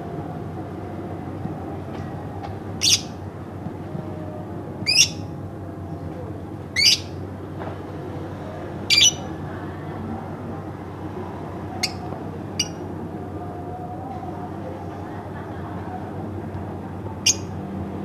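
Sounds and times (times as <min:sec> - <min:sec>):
low background noise: 0:00.0 - 0:18.0
lovebird calling: 0:02.8 - 0:03.2, 0:04.8 - 0:05.3, 0:06.8 - 0:07.1, 0:08.9 - 0:09.3, 0:11.8 - 0:12.8.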